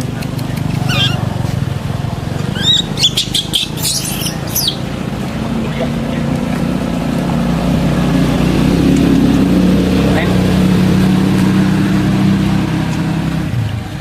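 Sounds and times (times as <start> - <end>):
engine running: 0.0 - 14.0
high squeaky chirps: 0.7 - 1.6, 2.3 - 5.0.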